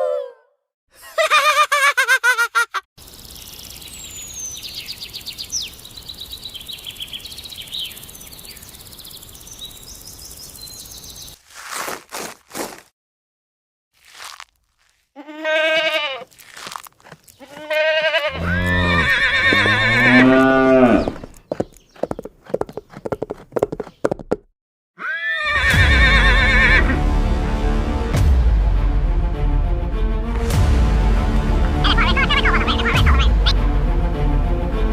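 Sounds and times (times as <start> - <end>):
animal bleating: 15.2 - 16.4, 17.4 - 21.3, 31.8 - 33.4
music: 25.6 - 34.9.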